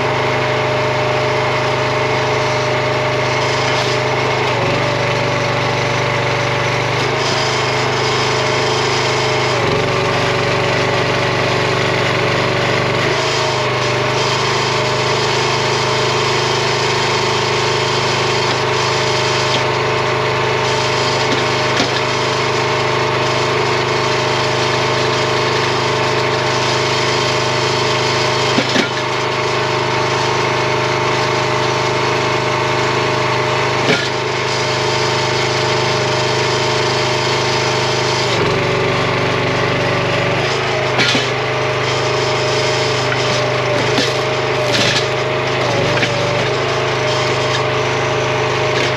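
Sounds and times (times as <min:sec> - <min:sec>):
log splitter engine running: 0:00.0 - 0:48.9
wood splitting cracks: 0:43.1 - 0:45.2.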